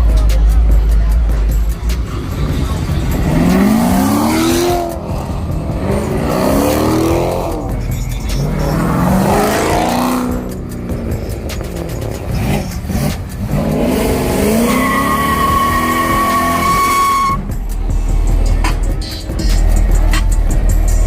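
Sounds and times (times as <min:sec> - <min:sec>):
car engine revving hard: 0:02.9 - 0:07.7, 0:08.5 - 0:10.5, 0:11.8 - 0:17.4.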